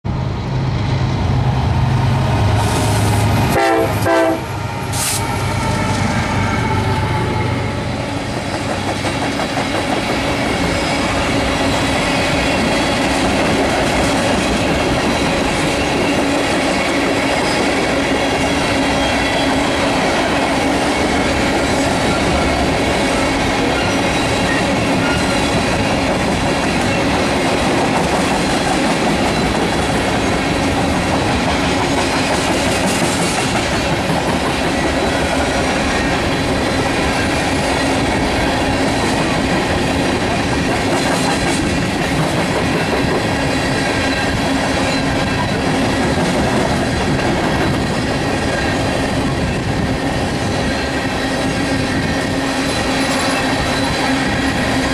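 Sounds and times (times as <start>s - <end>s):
diesel locomotives rumbling: 0.1s - 54.9s
train horn note: 1.8s - 8.1s
clickety-clack of rail joints: 8.0s - 54.9s.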